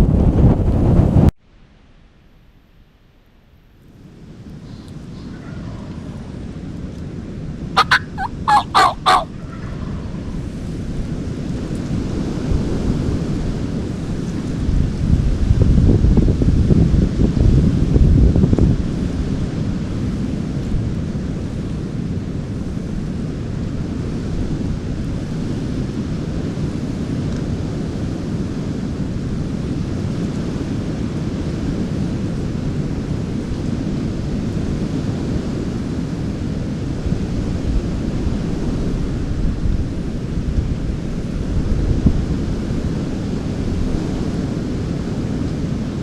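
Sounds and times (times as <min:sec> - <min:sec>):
wind buffeting microphone: 0:00.0 - 0:01.3.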